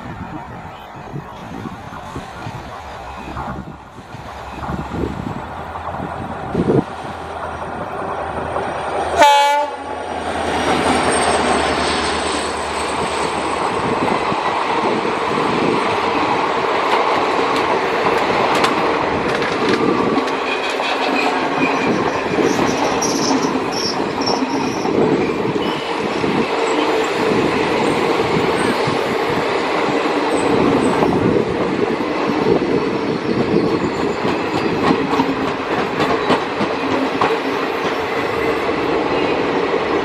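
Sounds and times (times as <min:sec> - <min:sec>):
train passing with rumble: 0:00.0 - 0:40.0
train horn blast: 0:09.2 - 0:10.0
wheels clattering over rail joints: 0:16.8 - 0:25.9.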